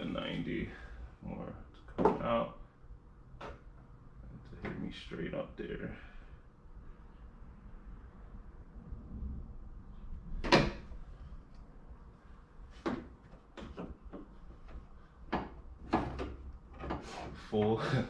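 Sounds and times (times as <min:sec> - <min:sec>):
knocks and clunks of piping: 0:12.8 - 0:17.4.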